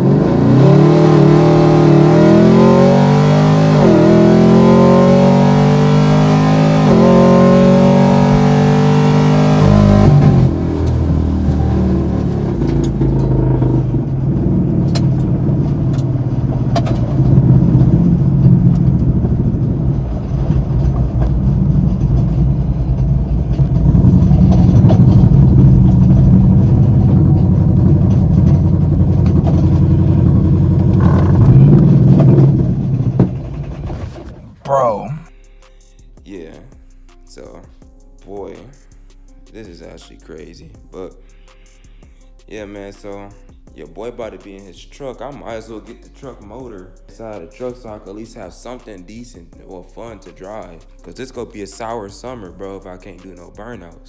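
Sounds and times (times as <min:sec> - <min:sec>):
car engine accelerating: 0:00.0 - 0:35.3
engine rumble: 0:00.0 - 0:41.3, 0:42.0 - 0:54.0.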